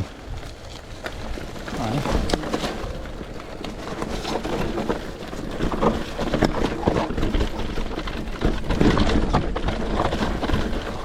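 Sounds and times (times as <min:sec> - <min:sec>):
bike knocks and rattles: 0:00.0 - 0:11.0
bike tyres on dirt trail: 0:00.0 - 0:11.0.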